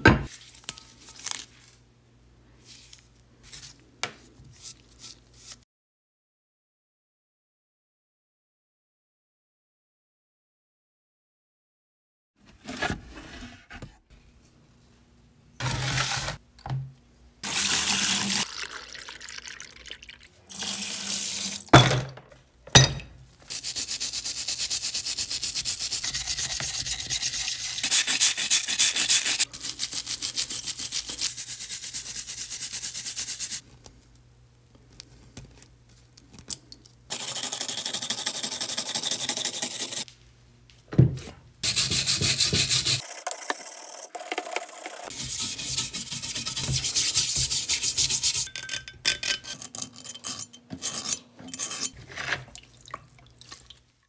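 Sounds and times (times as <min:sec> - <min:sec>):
wire brush scrubbing metal: 0:23.5 - 0:33.6, 0:37.1 - 0:40.0, 0:41.6 - 0:43.0, 0:44.8 - 0:48.5.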